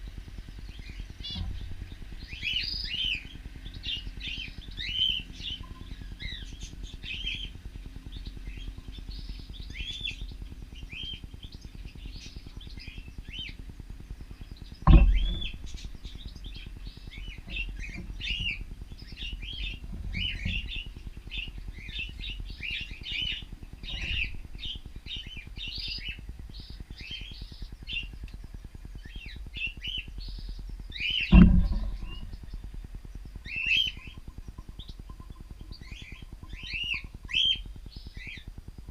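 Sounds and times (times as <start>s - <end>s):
loud thumps: 14.8s - 16.7s, 31.3s - 33.0s.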